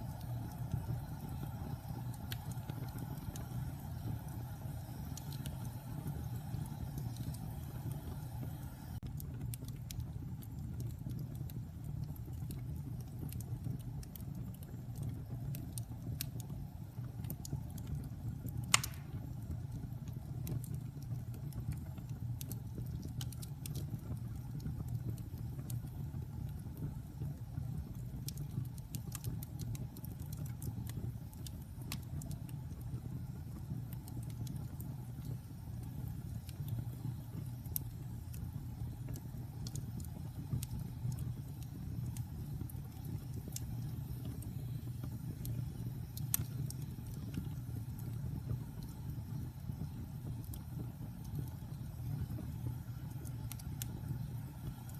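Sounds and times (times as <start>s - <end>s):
wood fire crackling: 0.0s - 54.9s
sharp pop from fire: 18.6s - 19.4s.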